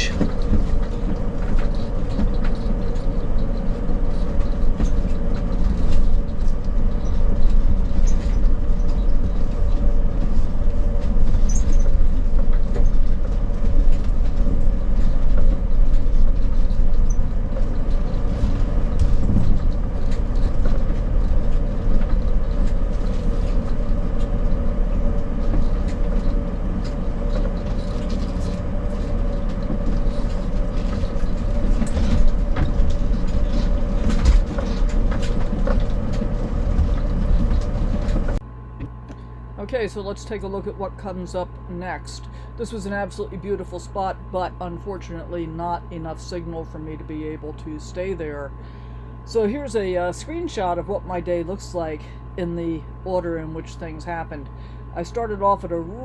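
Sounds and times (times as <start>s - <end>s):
small rattles and clatters: 0.0s - 38.4s
road rumble and engine drone: 0.0s - 56.0s.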